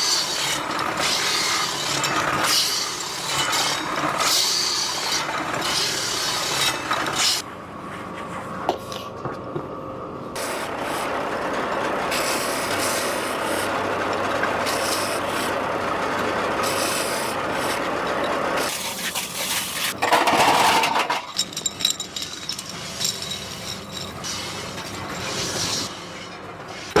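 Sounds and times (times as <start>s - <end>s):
metal being filed: 0.0s - 7.4s.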